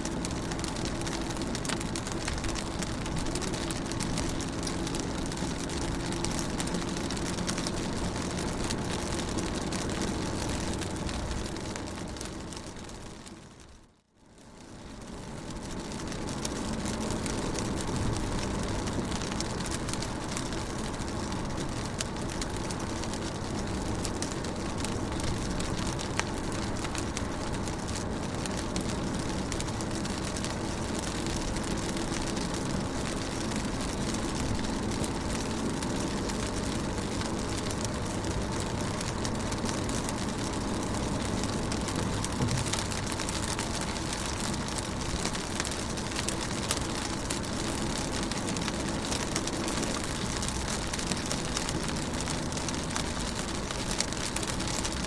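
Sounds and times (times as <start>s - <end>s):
rain on car window: 0.0s - 55.0s
low even rumble: 14.6s - 49.5s.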